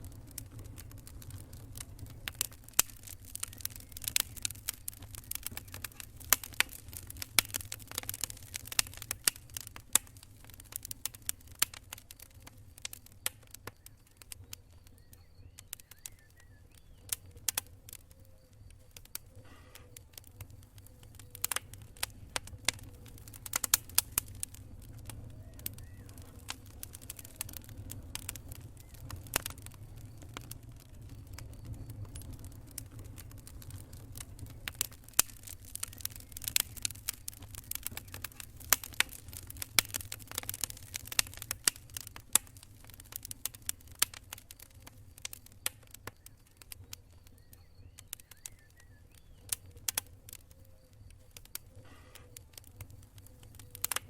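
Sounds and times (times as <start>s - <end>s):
low steady rumble: 0.0s - 9.0s
campfire crackling: 0.0s - 54.0s.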